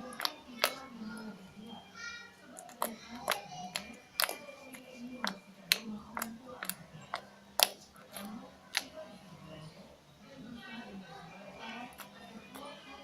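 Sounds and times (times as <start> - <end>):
sharp clicks and pops: 2.5 - 9.0.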